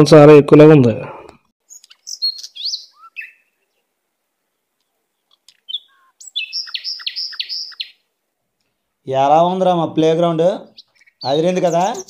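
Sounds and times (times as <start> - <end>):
small birds chirping: 1.6 - 3.9, 4.5 - 9.0, 10.6 - 12.0.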